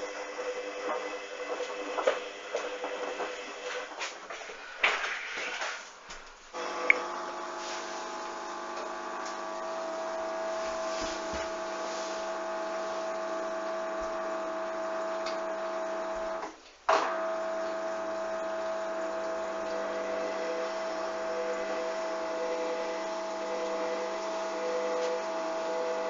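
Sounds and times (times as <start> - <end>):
washing machine whining hum: 0.0 - 26.0
water swishing: 6.8 - 13.5.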